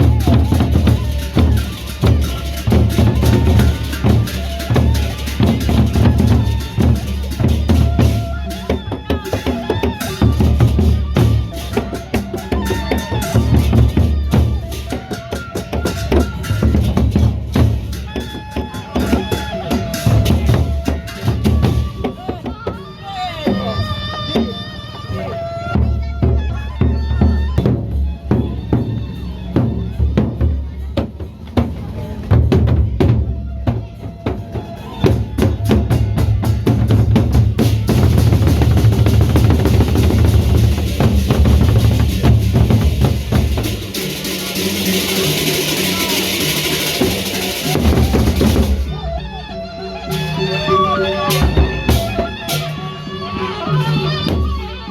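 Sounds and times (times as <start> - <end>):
fast drum beat: 0.0 - 14.8, 35.0 - 49.0
cymbals clashing: 0.0 - 22.1, 35.9 - 49.0, 50.0 - 54.6.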